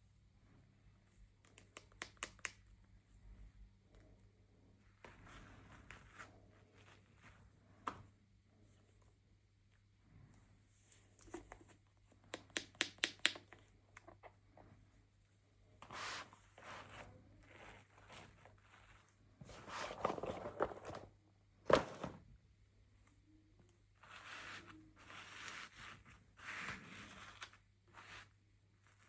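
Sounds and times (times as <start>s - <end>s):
sharp clicks and taps: 12.3s - 13.6s
packaging crinkling and rustling: 19.5s - 21.1s.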